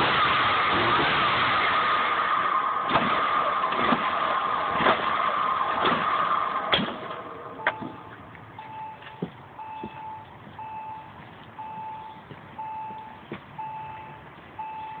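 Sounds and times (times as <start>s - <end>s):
car warning chime beeping: 7.5s - 15.0s.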